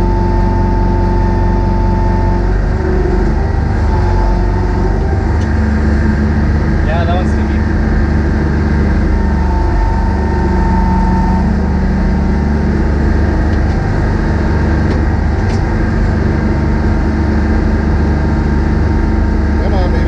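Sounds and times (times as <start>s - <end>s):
excavator diesel engine running: 0.0s - 20.0s
thin high tone: 9.2s - 12.6s.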